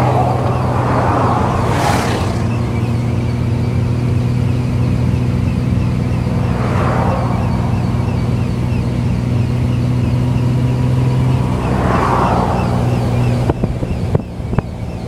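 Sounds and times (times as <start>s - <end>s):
rushing swell: 0.0s - 3.5s
engine humming: 0.0s - 15.0s.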